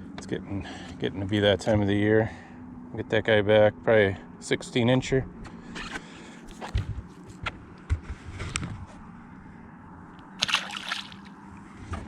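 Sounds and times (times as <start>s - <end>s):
water sloshing beside a boat: 10.2s - 12.0s
fish splashing into water: 10.4s - 11.4s.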